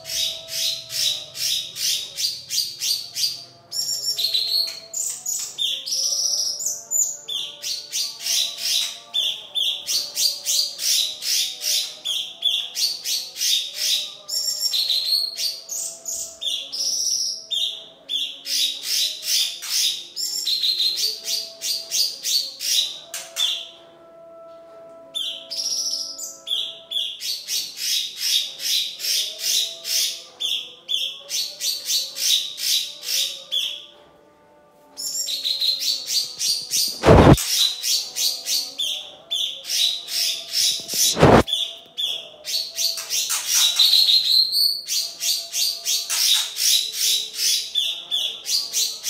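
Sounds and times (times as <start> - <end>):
fast high-pitched bird chirping: 35.1 - 38.7, 39.6 - 49.0
short whistled phrases: 40.9 - 41.7.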